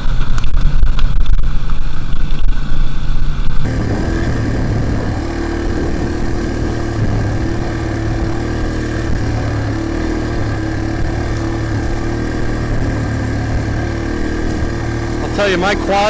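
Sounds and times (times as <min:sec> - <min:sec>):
dirt bike engine running: 0:03.7 - 0:16.0.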